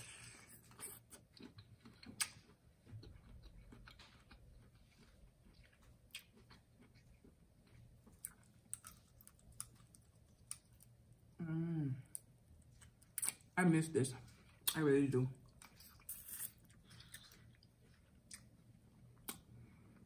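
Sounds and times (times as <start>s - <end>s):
faint chewing: 0.0s - 11.0s, 15.4s - 20.0s.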